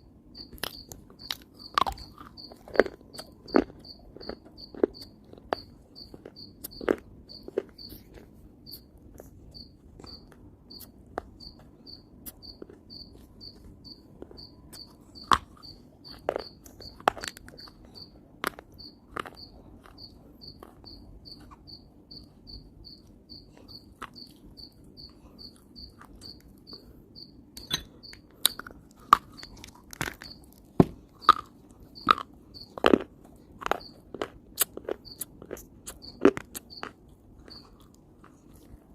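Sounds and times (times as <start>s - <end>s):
faint high chirp: 0.3s - 8.9s, 9.5s - 18.2s, 18.8s - 28.7s, 29.4s - 30.5s, 35.9s - 37.8s
dry clay crunching in mouth: 0.5s - 11.4s, 12.2s - 21.6s, 28.2s - 38.9s.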